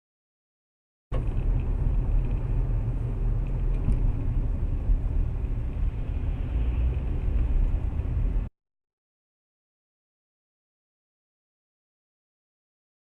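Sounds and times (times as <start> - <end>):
car engine and road noise: 1.1 - 8.5.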